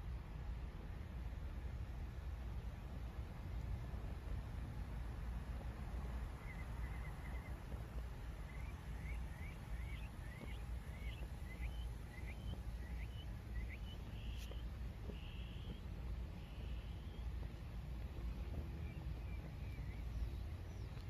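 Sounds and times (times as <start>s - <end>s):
low steady rumble: 0.0s - 21.0s
bird chirping: 6.4s - 7.7s, 8.4s - 17.5s, 18.3s - 21.0s.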